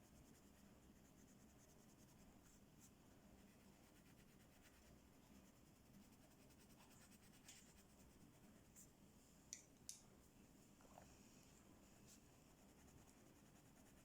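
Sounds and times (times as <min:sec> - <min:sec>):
pencil scratching on paper: 0:12.0 - 0:14.0.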